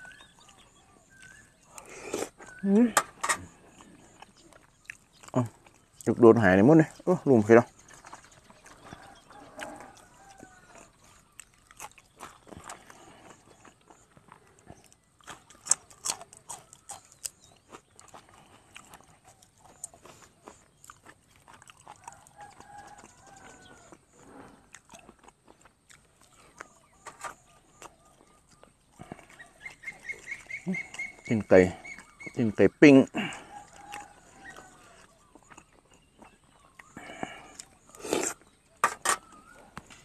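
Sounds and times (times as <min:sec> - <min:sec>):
man chewing crunchy food: 0:00.0 - 0:40.0
faint animal call: 0:08.8 - 0:11.2.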